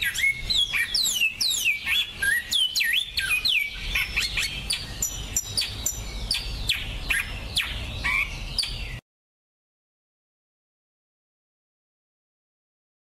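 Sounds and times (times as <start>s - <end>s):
finch song: 0.0s - 9.0s.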